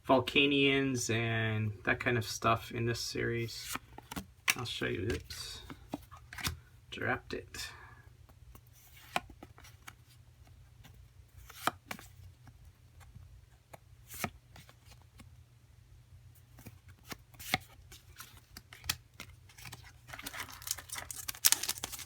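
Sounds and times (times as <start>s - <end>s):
cards rustling: 16.6s - 22.0s
cards clicking and tapping: 18.5s - 22.0s.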